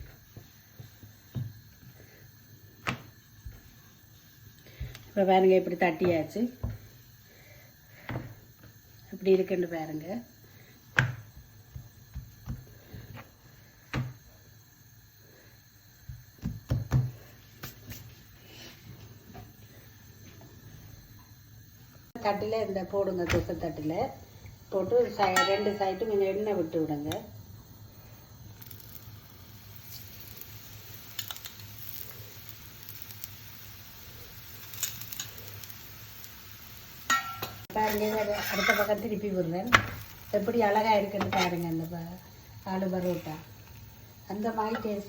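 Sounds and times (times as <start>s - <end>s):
flatbread sizzling on a griddle: 0.0s - 45.0s
soft kitchen knocks and taps: 16.1s - 17.2s.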